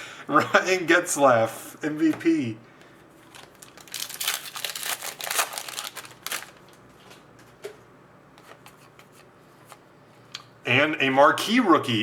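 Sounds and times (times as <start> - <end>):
trading cards rustling: 3.2 - 7.2.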